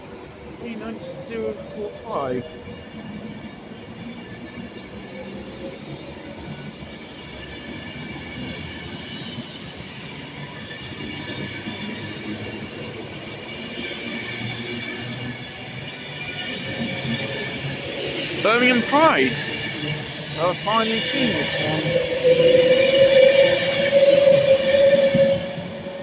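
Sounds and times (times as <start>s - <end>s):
electric train whine: 0.0s - 26.0s
train rumble: 10.9s - 26.0s.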